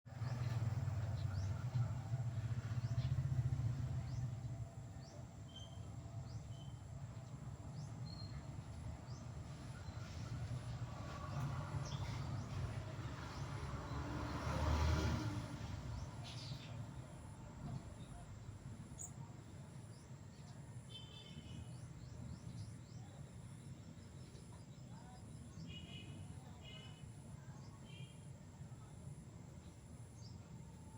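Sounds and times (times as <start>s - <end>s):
small bird chirping: 2.6s - 6.8s.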